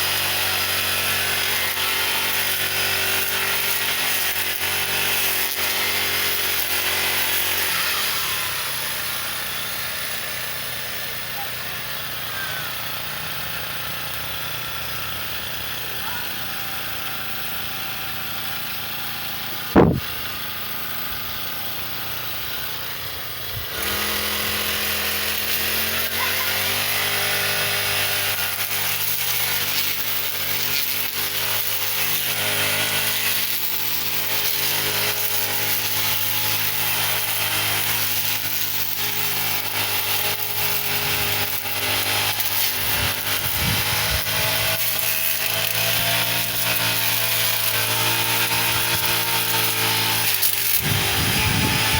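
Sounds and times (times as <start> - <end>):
brush cutter engine: 0.0 - 51.9
loud falling swish: 19.7 - 20.2.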